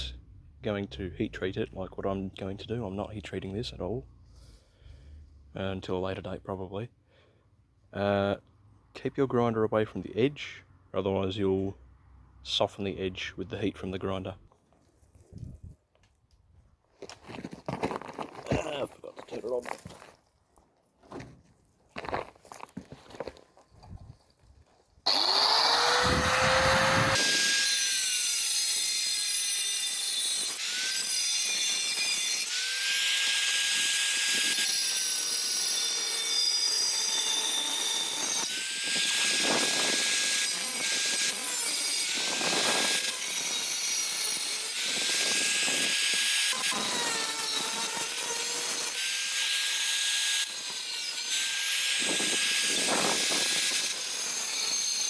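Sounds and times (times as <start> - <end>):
angle grinder grinding metal: 25.1 - 55.0.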